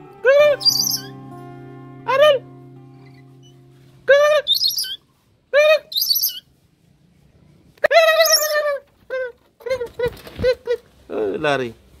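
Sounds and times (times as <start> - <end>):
bird nasal calls: 0.6 - 1.1, 4.4 - 5.0, 5.9 - 6.5, 7.9 - 8.7
bird chirps: 0.6 - 1.2, 4.4 - 5.0, 5.9 - 6.5, 8.2 - 8.6.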